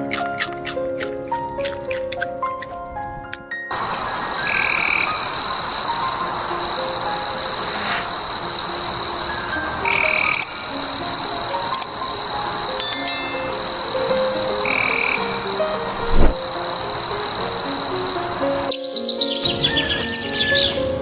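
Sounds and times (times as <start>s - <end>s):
trilling animal chorus: 3.7s - 21.0s.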